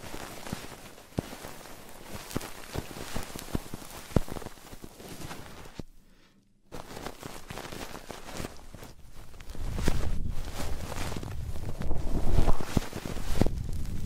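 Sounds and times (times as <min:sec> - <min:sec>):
crackling and scratching on microphone: 0:00.0 - 0:05.9, 0:06.7 - 0:14.0.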